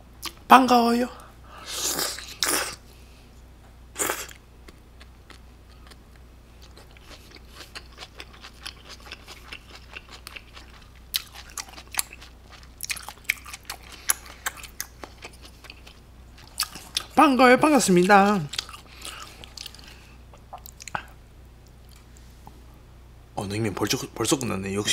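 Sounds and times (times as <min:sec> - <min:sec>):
open-mouthed chewing: 0:04.0 - 0:17.2, 0:18.0 - 0:22.2.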